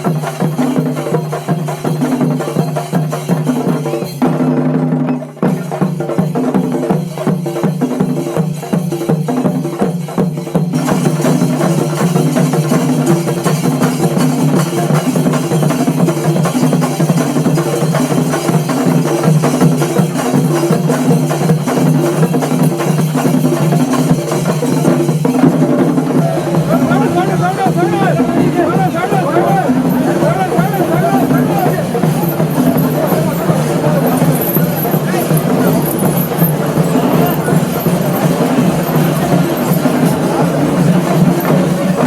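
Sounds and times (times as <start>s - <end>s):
drum and wood-block rhythm: 0.0s - 42.0s.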